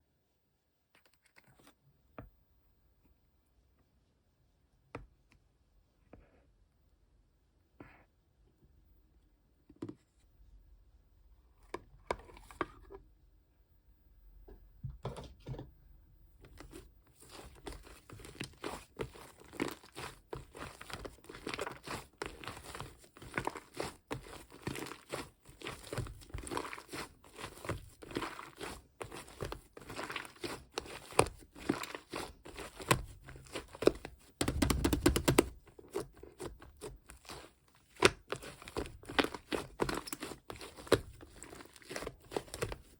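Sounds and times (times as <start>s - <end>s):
slime squelch: 16.4s - 42.9s
foam slime crackling and popping: 17.3s - 42.9s.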